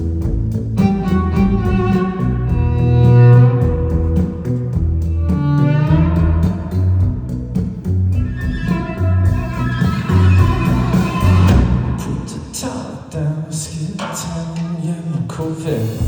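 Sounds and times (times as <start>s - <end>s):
rock band playing: 0.0s - 12.2s.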